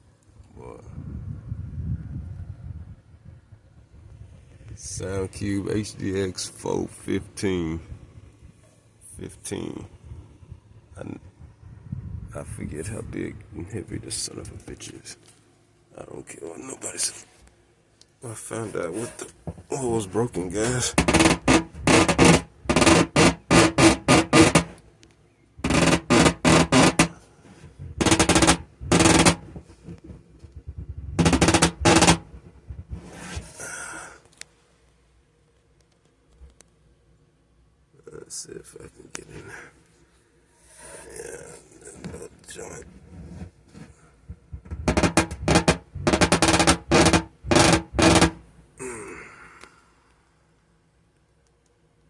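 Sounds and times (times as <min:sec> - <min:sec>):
short scrape: 0:18.6 - 0:19.4, 0:32.9 - 0:33.7, 0:40.6 - 0:41.2
banging on wooden box: 0:28.0 - 0:30.2
knocking on wooden enclosure: 0:28.0 - 0:30.2.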